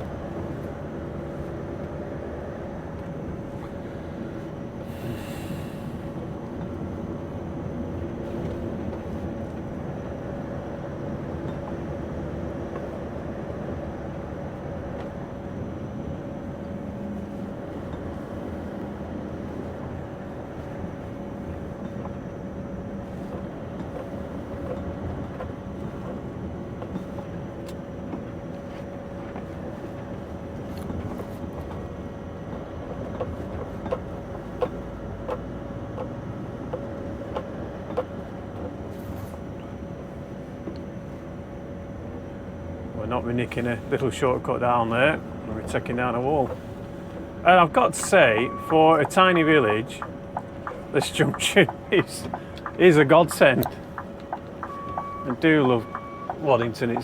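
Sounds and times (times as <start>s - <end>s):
lorry engine droning: 41.5s - 57.0s
road noise: 42.7s - 57.0s.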